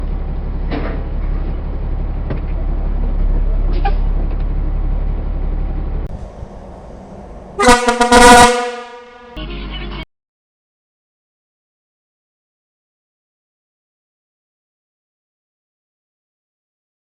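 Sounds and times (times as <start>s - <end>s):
vehicle engine rumble: 0.0s - 10.1s
vehicle horn blast: 7.6s - 10.0s.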